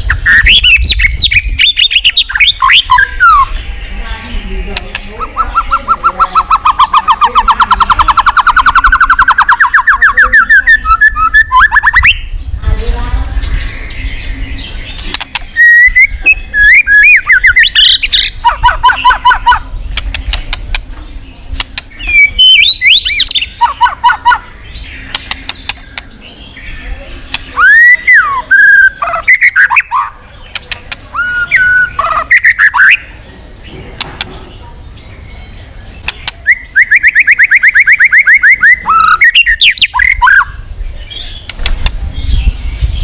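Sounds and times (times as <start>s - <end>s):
songbird whistling loudly: 5.2s - 12.3s, 15.6s - 19.7s, 22.1s - 24.4s, 27.5s - 30.1s, 31.1s - 33.0s, 36.4s - 40.6s.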